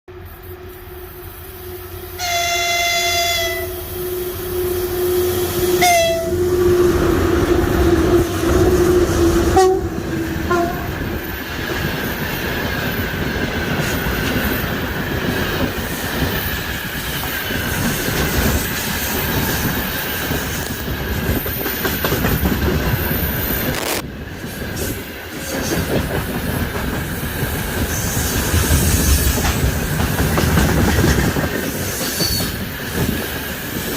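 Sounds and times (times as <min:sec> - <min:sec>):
train rumbling by: 0:00.1 - 0:33.9
locomotive horn blasts: 0:02.2 - 0:04.1, 0:05.7 - 0:06.8, 0:09.4 - 0:11.0
wheels clacking over rail joints: 0:24.7 - 0:33.3.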